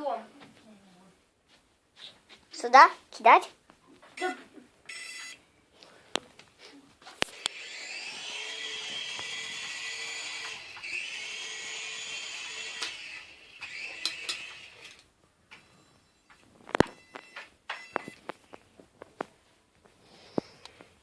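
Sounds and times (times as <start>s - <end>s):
toy helicopter rotor buzzing whine: 7.3s - 15.0s.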